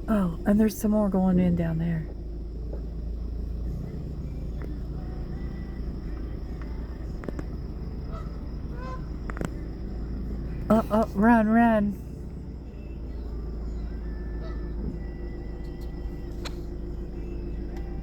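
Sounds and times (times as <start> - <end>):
steady low rumble: 0.0 - 18.0
faint goose honks: 8.1 - 9.1, 14.4 - 14.7.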